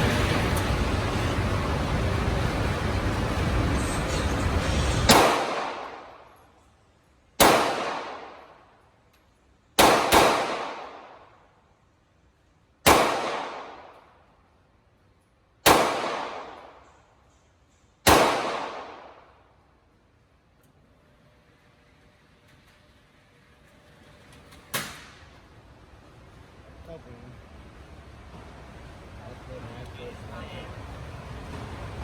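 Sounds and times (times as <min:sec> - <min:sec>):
pistol shots with echo: 0:05.1 - 0:06.2, 0:07.4 - 0:08.6, 0:09.8 - 0:11.3, 0:12.8 - 0:14.0, 0:15.6 - 0:16.9, 0:18.0 - 0:19.3.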